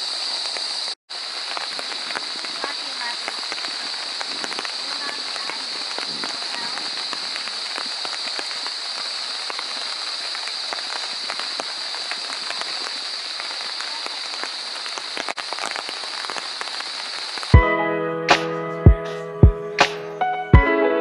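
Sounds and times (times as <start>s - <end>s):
steady rain falling: 0.0s - 20.7s
raindrops ticking: 0.4s - 17.7s.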